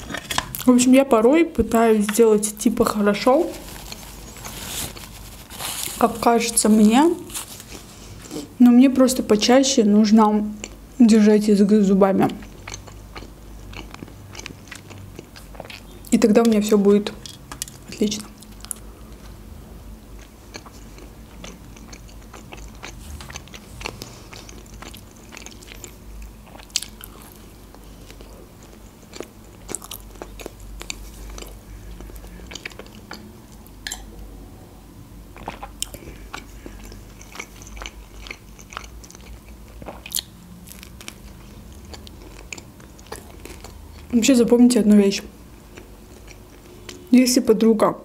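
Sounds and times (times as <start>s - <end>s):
pizza crust crunching: 2.9s - 7.9s.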